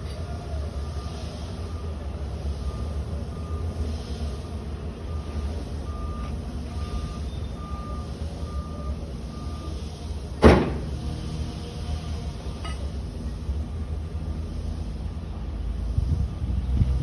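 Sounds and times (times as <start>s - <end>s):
truck engine rumbling: 0.0s - 17.0s
backup alarm beeping: 5.1s - 9.8s
loud bang: 10.4s - 11.0s.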